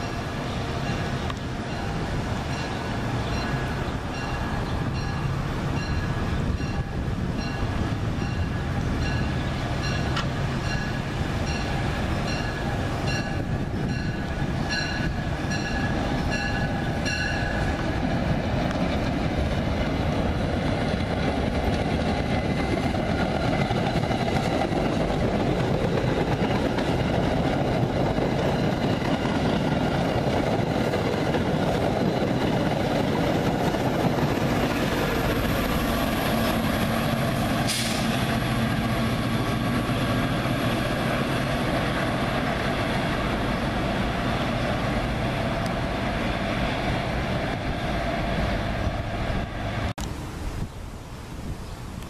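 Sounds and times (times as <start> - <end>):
train bell ringing: 0.0 - 17.8
train rolling past: 0.0 - 50.2
diesel locomotive engine drone: 0.0 - 52.0.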